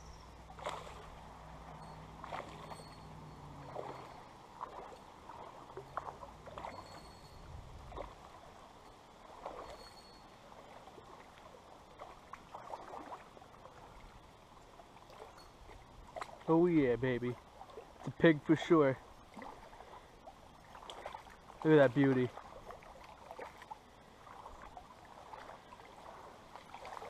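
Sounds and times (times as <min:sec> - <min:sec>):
stream flowing: 0:00.0 - 0:27.0
water sloshing and splashing: 0:00.0 - 0:27.0.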